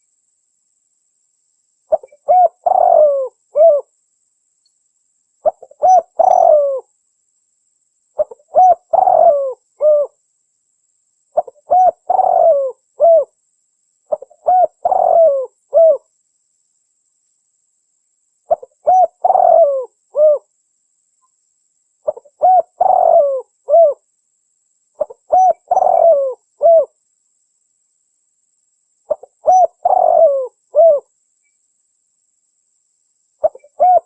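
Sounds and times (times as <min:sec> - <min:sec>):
dove cooing: 0:01.9 - 0:03.9, 0:05.4 - 0:06.9, 0:08.2 - 0:10.2, 0:11.4 - 0:13.4, 0:14.1 - 0:16.1, 0:18.5 - 0:20.5, 0:22.0 - 0:24.0, 0:25.0 - 0:27.0, 0:29.1 - 0:31.1, 0:33.4 - 0:34.0.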